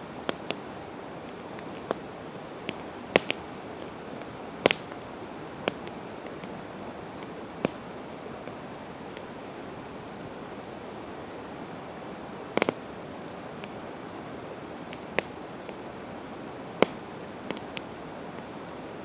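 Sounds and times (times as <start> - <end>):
campfire crackling: 0.1 - 18.7
fire popping: 2.6 - 12.9
insect chirping: 4.8 - 12.0.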